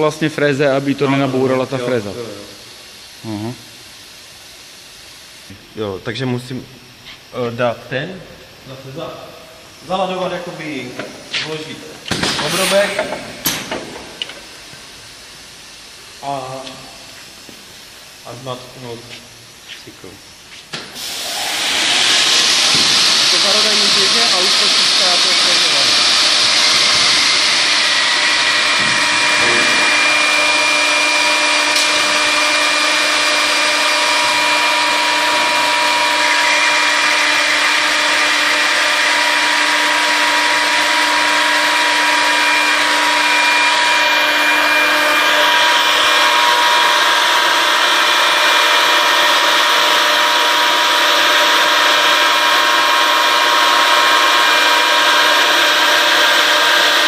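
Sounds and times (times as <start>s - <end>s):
router spindle whining cutting wood: 21.2s - 57.0s.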